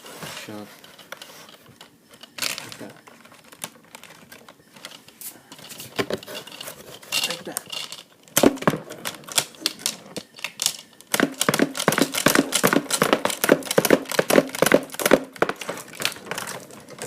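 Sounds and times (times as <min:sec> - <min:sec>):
plastic toy shooter clicking: 0:08.4 - 0:16.1.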